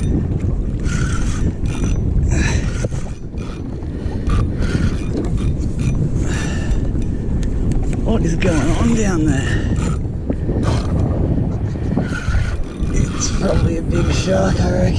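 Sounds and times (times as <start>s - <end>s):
wind rumble on microphone: 0.0s - 14.9s
fishing reel running: 0.8s - 6.0s, 12.0s - 14.9s.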